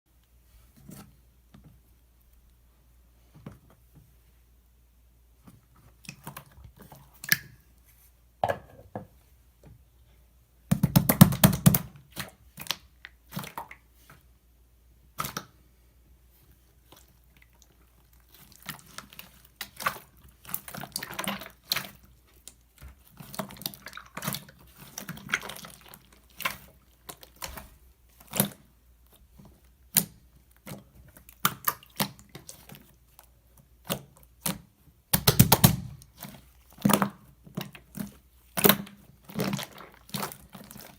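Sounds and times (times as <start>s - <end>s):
slime clicking and popping: 34.4s - 36.1s.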